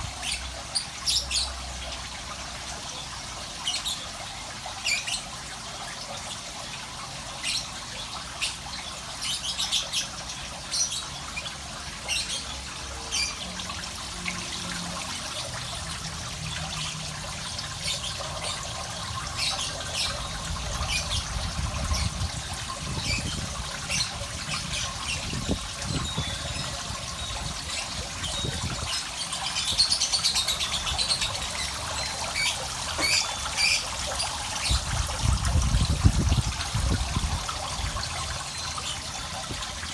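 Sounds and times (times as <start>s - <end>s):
running water trickling: 0.0s - 39.9s
small bird chirping: 23.0s - 34.9s.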